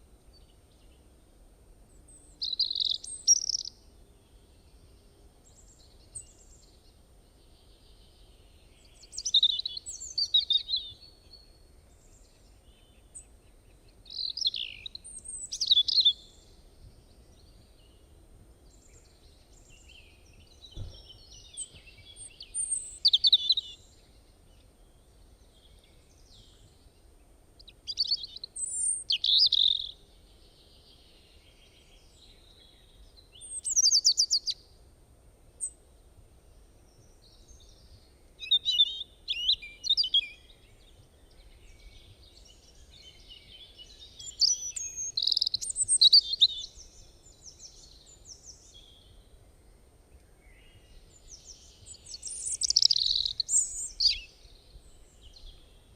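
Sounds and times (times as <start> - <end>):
songbirds chirping: 0.0 - 55.9
soft low knock: 20.7 - 21.9.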